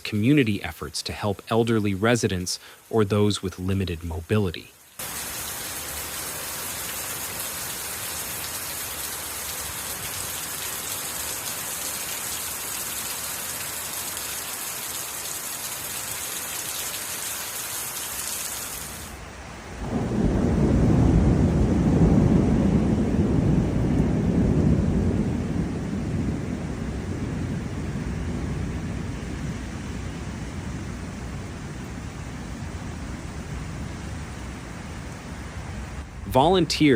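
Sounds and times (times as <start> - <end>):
heavy rain hissing: 0.0 - 21.1.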